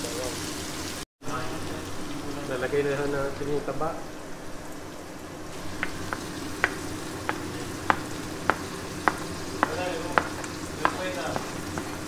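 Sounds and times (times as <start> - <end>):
beef fat and onions sizzling: 0.0 - 12.0.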